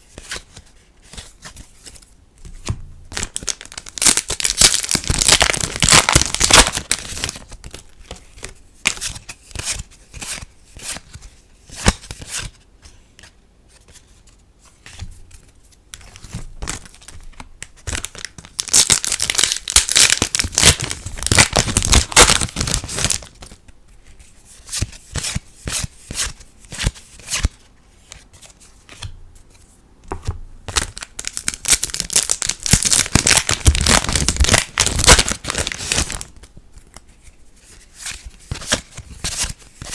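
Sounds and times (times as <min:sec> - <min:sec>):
card packs torn and crinkled: 0:03.2 - 0:07.9, 0:17.8 - 0:23.6, 0:30.7 - 0:36.3.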